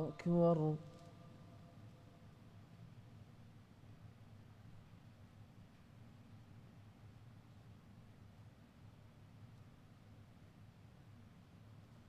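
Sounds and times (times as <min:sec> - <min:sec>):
man's voice echoing: 0:00.0 - 0:01.1.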